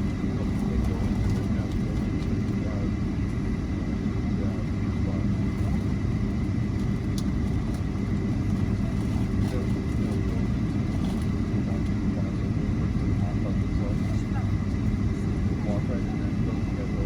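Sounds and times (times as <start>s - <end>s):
wheels rolling on taxiway: 0.0s - 3.5s, 4.5s - 17.0s
jet engine low rumble: 0.0s - 17.0s.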